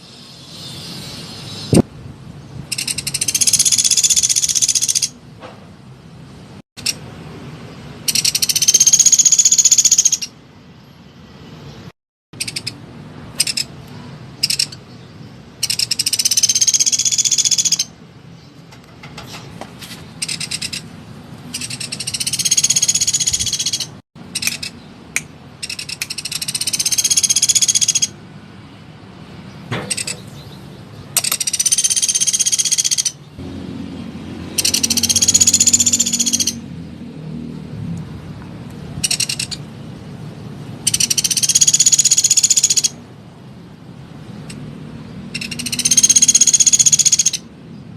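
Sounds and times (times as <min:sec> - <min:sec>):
woodpecker high-pitched trills: 0:02.7 - 0:05.2, 0:08.1 - 0:10.3, 0:15.6 - 0:18.0, 0:21.6 - 0:24.7, 0:25.6 - 0:28.2, 0:31.2 - 0:33.2, 0:34.6 - 0:36.6, 0:39.0 - 0:39.6, 0:40.9 - 0:43.0, 0:45.4 - 0:47.5
woodpecker sharp call notes: 0:08.1 - 0:10.3, 0:12.4 - 0:12.8, 0:13.4 - 0:13.8, 0:14.4 - 0:14.8, 0:15.6 - 0:17.9, 0:20.2 - 0:20.8, 0:21.5 - 0:24.8, 0:25.6 - 0:28.2, 0:29.9 - 0:30.4, 0:31.2 - 0:33.2, 0:34.5 - 0:36.6, 0:39.0 - 0:39.6, 0:40.9 - 0:43.0, 0:45.3 - 0:47.5.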